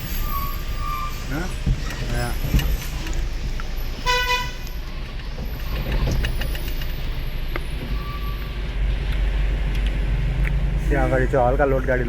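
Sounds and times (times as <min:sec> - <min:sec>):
vehicle rumbling on road: 0:00.0 - 0:12.0
vehicle horn toot: 0:04.0 - 0:04.8.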